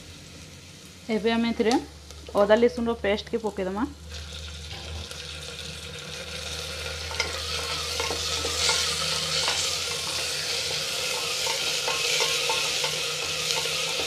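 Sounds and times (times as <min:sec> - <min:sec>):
onions sizzling in hot oil: 0:00.0 - 0:14.0
wooden spatula scraping pot: 0:11.0 - 0:14.0.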